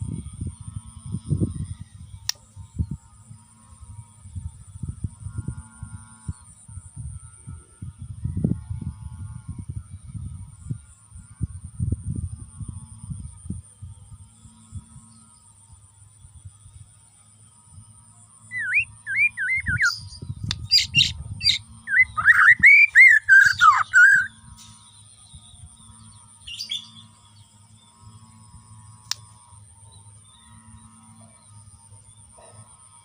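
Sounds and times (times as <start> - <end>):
faint high whine: 0.0 - 33.0
bird singing whistled phrases: 18.5 - 24.3
click: 29.0 - 29.2.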